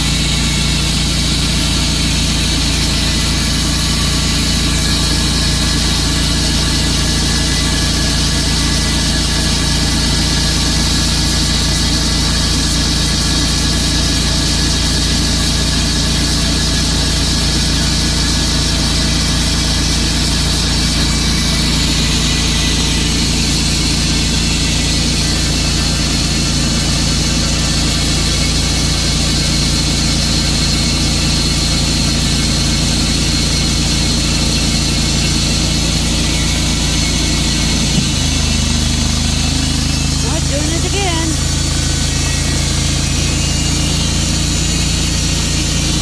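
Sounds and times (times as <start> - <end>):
saw hissing: 0.0 - 29.3
sawmill engine humming: 0.0 - 46.0.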